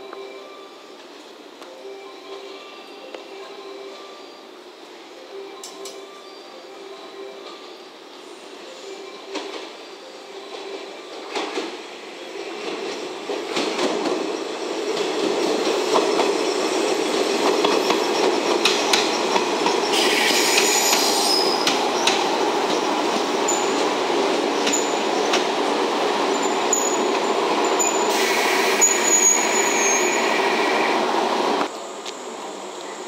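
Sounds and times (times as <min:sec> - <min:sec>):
train wheels rumbling on rails: 0:09.3 - 0:33.0
high-pitched wheel squeal: 0:17.8 - 0:23.8, 0:27.8 - 0:31.2.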